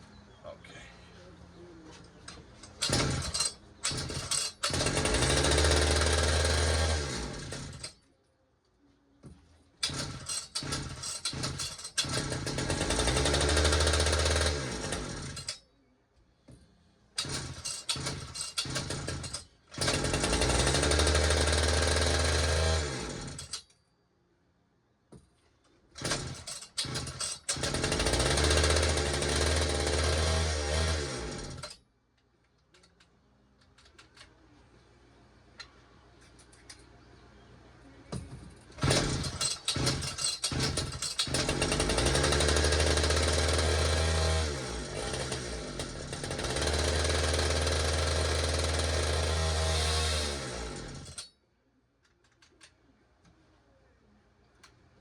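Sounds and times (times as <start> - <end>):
chainsaw engine sputtering: 2.8 - 7.9, 9.8 - 15.6, 17.2 - 23.6, 26.0 - 31.7, 38.8 - 51.2.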